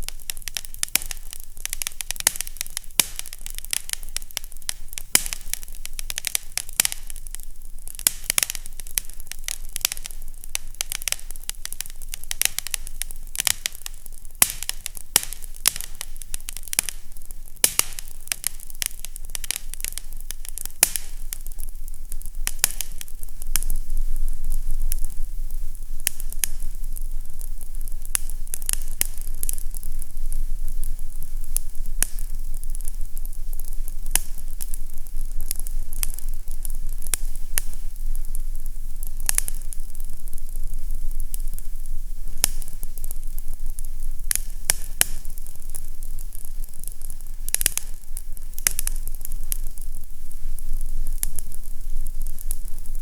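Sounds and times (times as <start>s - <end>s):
fire crackling in a fireplace: 0.0s - 53.0s
steady low hum: 0.0s - 53.0s.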